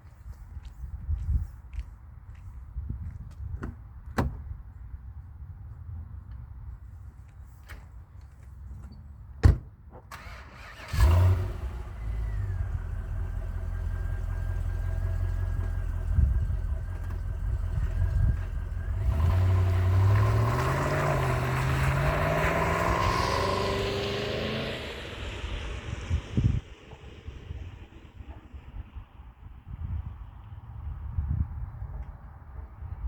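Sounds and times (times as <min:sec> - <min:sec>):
sharp thump: 0:09.4 - 0:10.1
car engine starting and idling: 0:10.0 - 0:29.4.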